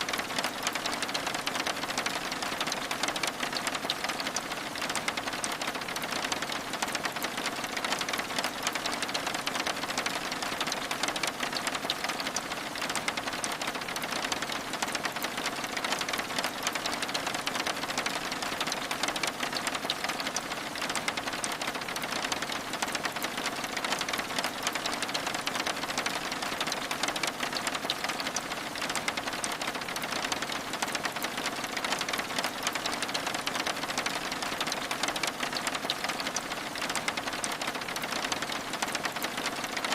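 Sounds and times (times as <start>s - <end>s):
rain pattering on window glass: 0.0s - 39.9s.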